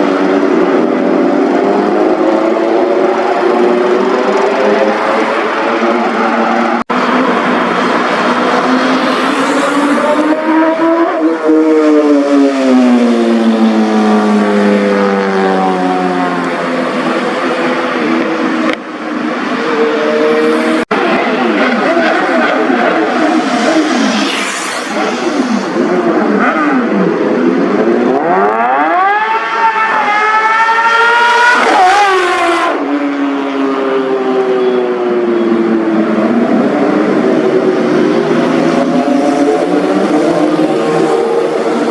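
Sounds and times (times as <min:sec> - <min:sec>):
motorcycle engine and exhaust: 0:00.0 - 0:41.9
motorcycle engine accelerating: 0:19.6 - 0:32.8, 0:35.9 - 0:41.9.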